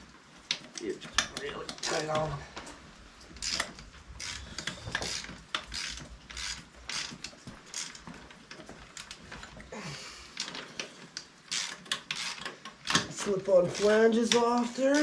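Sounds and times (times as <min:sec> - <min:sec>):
ratchet wrench clicking: 0:03.4 - 0:08.0, 0:11.5 - 0:15.0.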